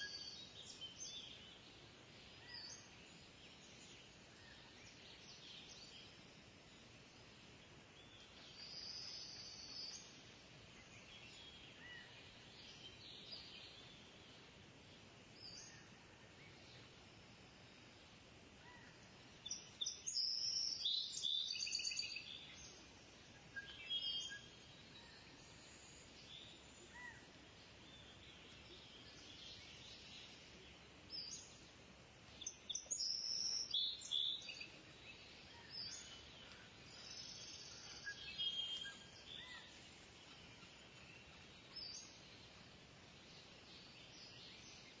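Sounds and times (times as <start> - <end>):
steady hiss: 0.0 - 45.0
bird chirps: 18.8 - 22.8, 23.4 - 30.4, 32.4 - 42.6.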